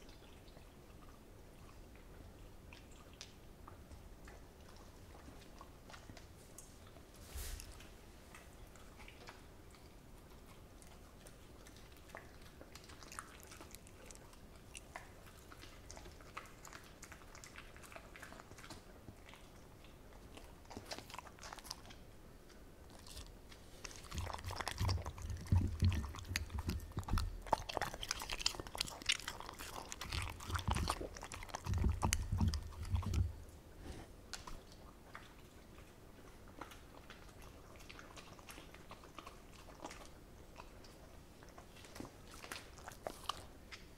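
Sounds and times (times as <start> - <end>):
dog chewing and biting: 2.7 - 43.9
dog licking bowl: 7.8 - 22.2, 23.0 - 33.6, 34.4 - 43.9.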